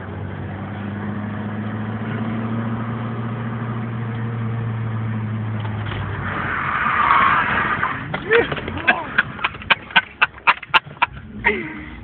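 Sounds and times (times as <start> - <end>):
car engine running: 7.6 - 12.0.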